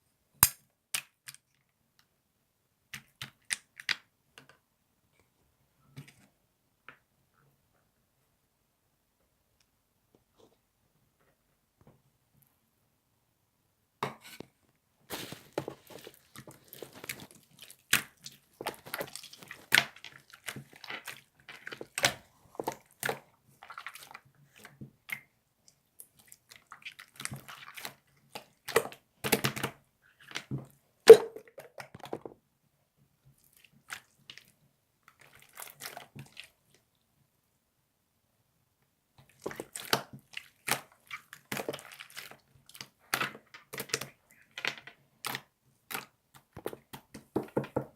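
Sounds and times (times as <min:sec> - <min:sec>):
crackling and crunching noises: 0:14.2 - 0:32.4.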